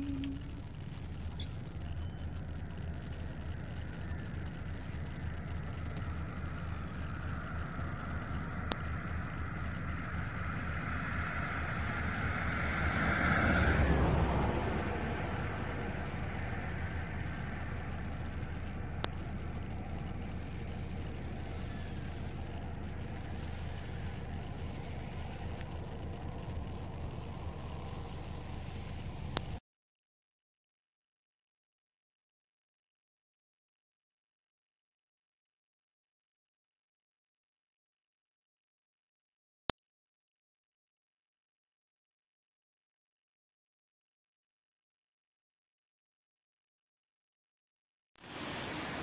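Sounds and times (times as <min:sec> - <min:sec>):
car engine and tyres rumbling: 0:00.0 - 0:29.6, 0:48.2 - 0:49.0
faint ticks: 0:00.0 - 0:29.6.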